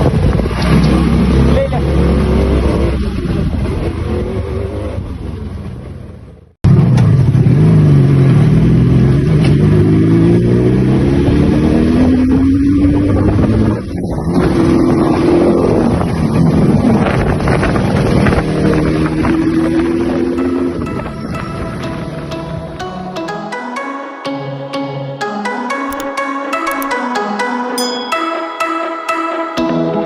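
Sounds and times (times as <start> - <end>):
two-stroke engine revving: 0.2 - 5.3, 6.7 - 20.8.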